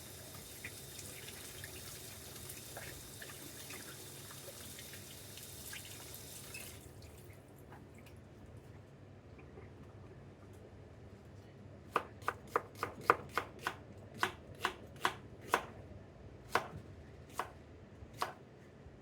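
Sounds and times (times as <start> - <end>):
knife slicing onion on board: 11.9 - 15.8, 16.5 - 17.6, 18.2 - 18.4.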